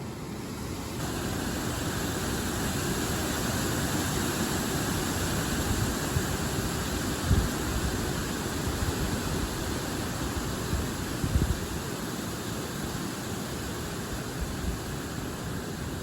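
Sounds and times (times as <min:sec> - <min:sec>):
wind gusting through trees: 0:00.0 - 0:16.0.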